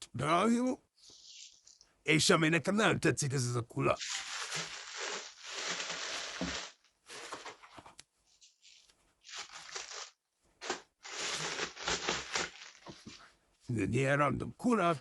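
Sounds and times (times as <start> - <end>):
packaging rustling and crinkling: 3.9 - 13.3.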